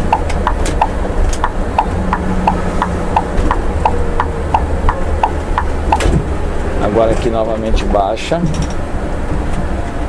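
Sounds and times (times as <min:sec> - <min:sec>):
turn signal ticking: 0:00.0 - 0:06.8
diesel engine drone: 0:00.0 - 0:10.0.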